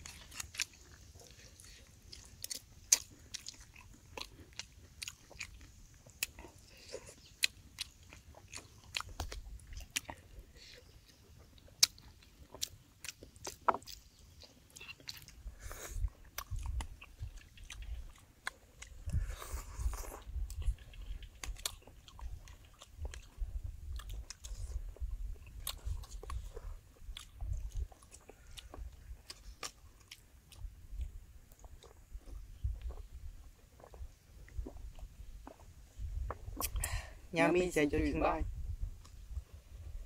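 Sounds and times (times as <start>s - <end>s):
chewing and biting eggs: 0.0s - 37.0s.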